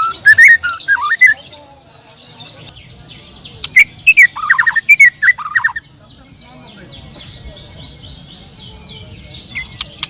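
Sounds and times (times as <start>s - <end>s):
songbird whistled phrases: 0.0s - 1.6s, 3.6s - 5.8s
high thin bird chirps: 3.5s - 5.8s.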